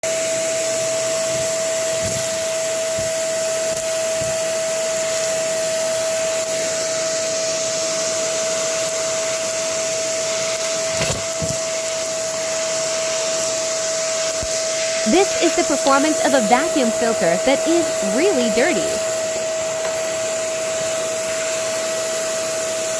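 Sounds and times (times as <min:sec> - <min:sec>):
vacuum cleaner running: 0:00.1 - 0:15.1.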